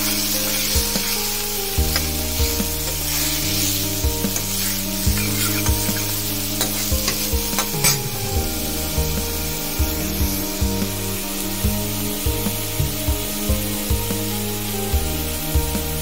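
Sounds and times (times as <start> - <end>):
steel spoon scraping pan: 0.0 - 9.1
onion sizzling in oil: 0.0 - 16.0.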